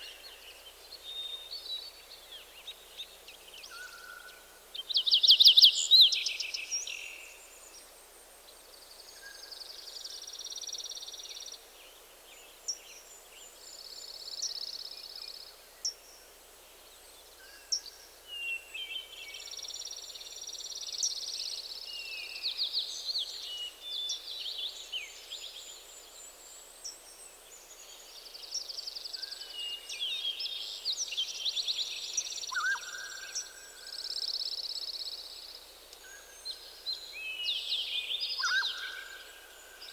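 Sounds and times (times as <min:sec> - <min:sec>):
faint forest background: 0:00.0 - 0:39.9
songbirds singing: 0:16.7 - 0:39.9.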